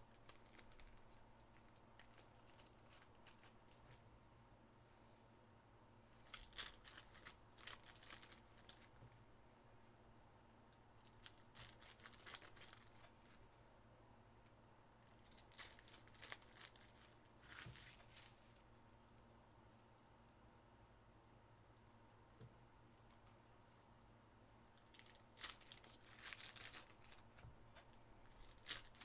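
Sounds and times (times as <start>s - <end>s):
card pack wrappers crinkling and tearing: 0.1s - 3.9s, 6.2s - 9.0s, 11.0s - 13.4s, 15.2s - 18.6s, 24.8s - 27.4s, 28.3s - 29.0s
cards rustling: 28.3s - 29.0s.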